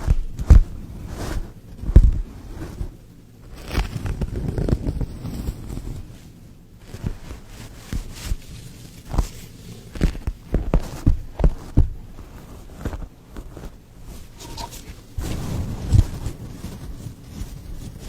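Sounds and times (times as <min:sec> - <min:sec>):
light rustling: 0:03.6 - 0:18.0.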